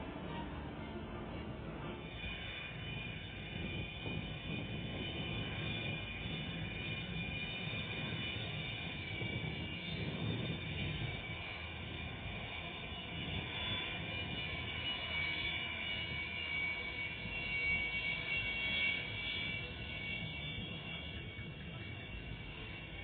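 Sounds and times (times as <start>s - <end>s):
jet aircraft engines running: 0.0s - 23.0s.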